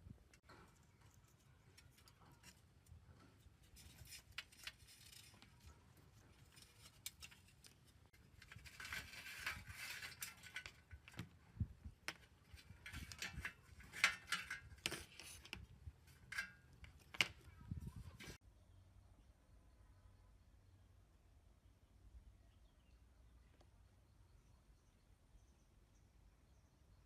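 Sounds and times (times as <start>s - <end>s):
scraping or rubbing: 0.4s - 11.4s, 12.2s - 18.4s.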